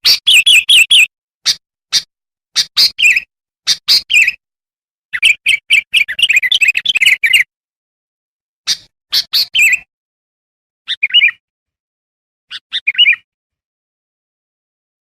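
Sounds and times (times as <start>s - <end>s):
bird chirping: 0.0s - 4.4s, 5.1s - 7.5s, 8.7s - 9.9s, 10.9s - 11.4s, 12.5s - 13.3s.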